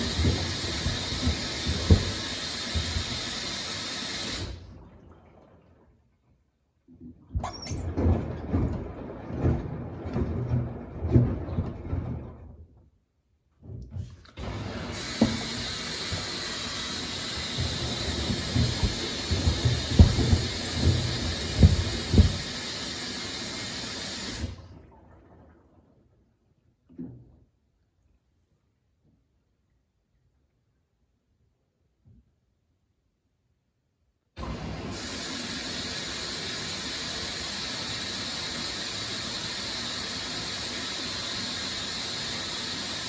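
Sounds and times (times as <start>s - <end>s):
water hissing into machine: 0.0s - 4.7s, 14.4s - 24.6s, 34.4s - 43.0s.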